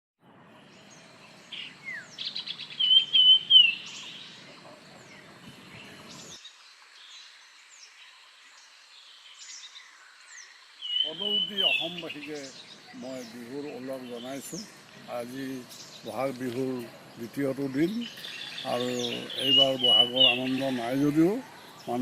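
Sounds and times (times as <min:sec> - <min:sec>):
faint bird chirps: 0:00.3 - 0:22.0
loud wavering bird whistle: 0:02.8 - 0:04.0.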